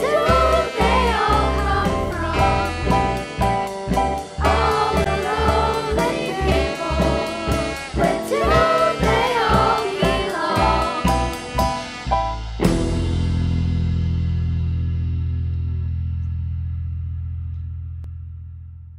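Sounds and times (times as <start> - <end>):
band playing a song: 0.0 - 14.7
bass and drums beat: 0.0 - 18.9
person singing: 4.4 - 11.9.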